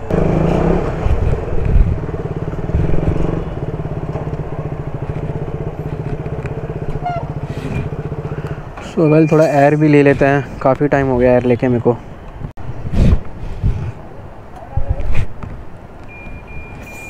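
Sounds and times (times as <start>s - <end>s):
motorcycle engine idling: 1.8s - 8.8s.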